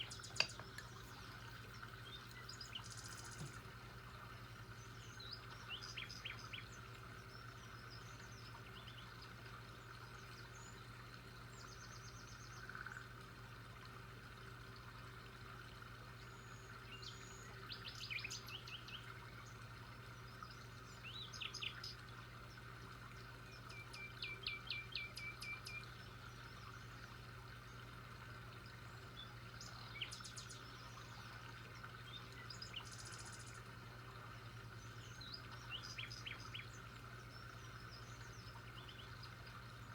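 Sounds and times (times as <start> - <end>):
birds chirping: 0.0 - 3.7
faint background hum: 0.0 - 39.9.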